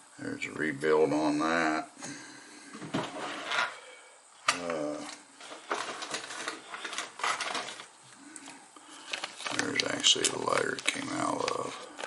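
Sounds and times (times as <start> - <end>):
small objects clicking and rattling: 5.4 - 7.9.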